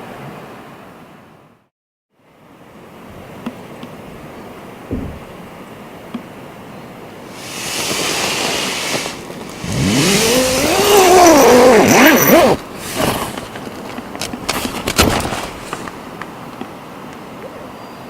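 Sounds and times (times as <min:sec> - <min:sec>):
motorcycle engine revving: 0:07.4 - 0:12.7.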